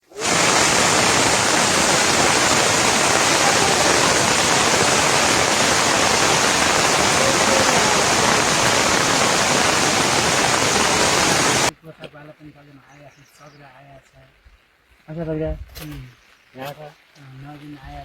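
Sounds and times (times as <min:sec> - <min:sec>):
water rushing: 0:00.0 - 0:11.7.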